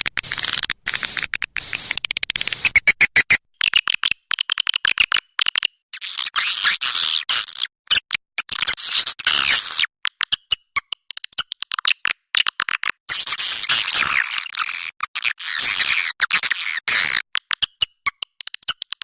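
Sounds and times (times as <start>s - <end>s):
swiftlets twittering: 0.0s - 2.9s.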